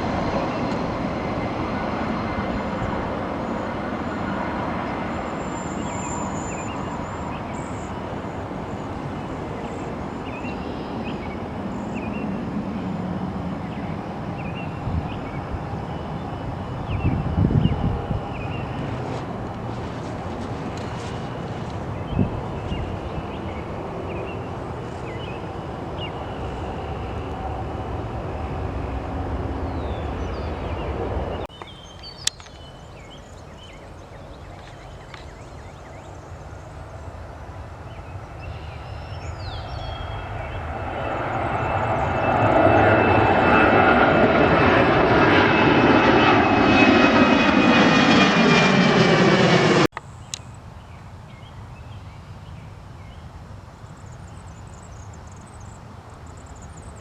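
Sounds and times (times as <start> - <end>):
jet passing by: 0.0 - 31.6, 36.1 - 50.0
jet engines running: 0.0 - 50.6.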